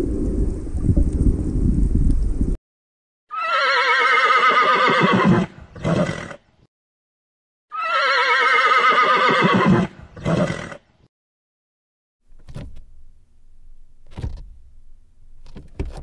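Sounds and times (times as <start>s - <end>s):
horse whinnying: 3.3s - 6.4s, 7.7s - 10.8s.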